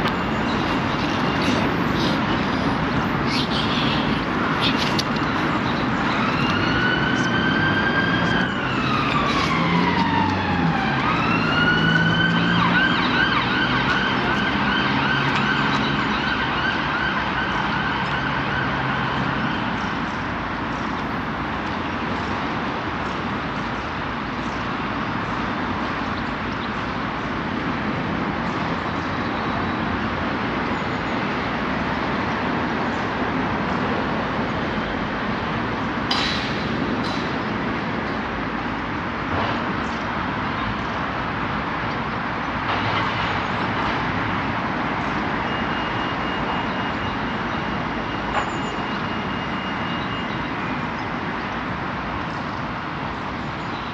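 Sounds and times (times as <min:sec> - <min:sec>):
train running rushing noise: 0:31.2 - 0:49.6.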